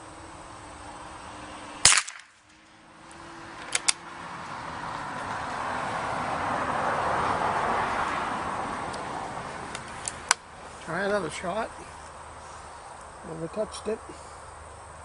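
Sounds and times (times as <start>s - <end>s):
rifle shot: 1.8s - 2.4s.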